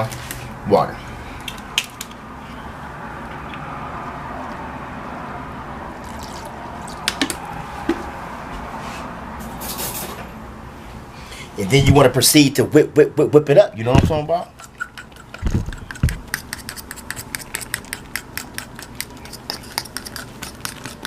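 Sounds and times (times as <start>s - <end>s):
water running into container: 6.0s - 7.2s.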